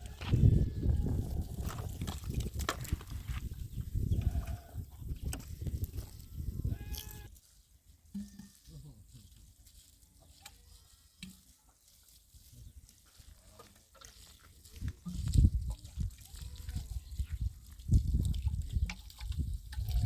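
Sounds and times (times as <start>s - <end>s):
livestock bleating: 4.1s - 4.9s, 6.7s - 7.3s.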